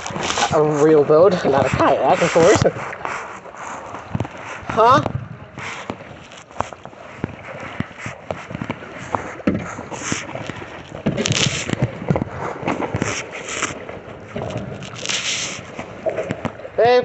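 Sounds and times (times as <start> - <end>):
paddle splashing in water: 0.0 - 17.0
paddle knocking on kayak hull: 4.0 - 14.8, 15.7 - 16.8.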